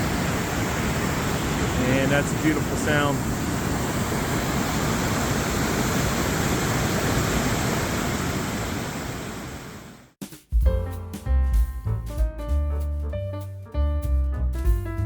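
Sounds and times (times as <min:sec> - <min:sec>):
river water rushing: 0:00.0 - 0:09.8
music: 0:10.2 - 0:15.0.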